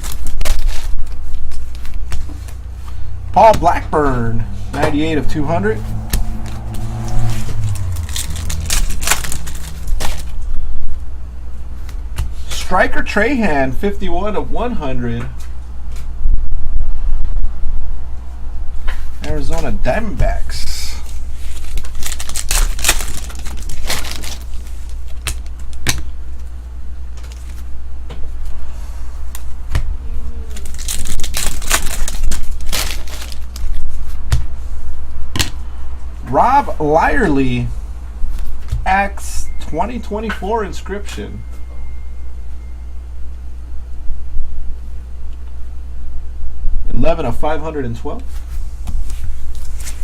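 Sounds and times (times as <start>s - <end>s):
steady low hum: 0.0s - 50.0s
card wrappers crinkling: 8.0s - 10.4s, 21.4s - 25.8s, 30.5s - 33.9s
foil wrapper scrapes: 8.1s - 10.4s, 21.4s - 25.2s, 30.6s - 33.8s.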